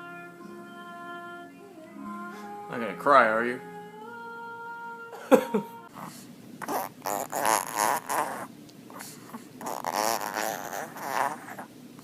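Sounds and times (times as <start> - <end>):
dog snorting and grumbling: 6.0 - 11.7.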